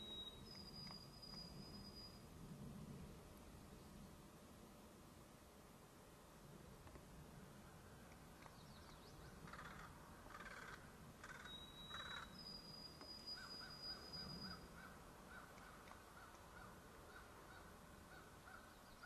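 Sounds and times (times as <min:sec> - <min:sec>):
harsh bird caws: 0:09.4 - 0:12.3, 0:13.3 - 0:19.0.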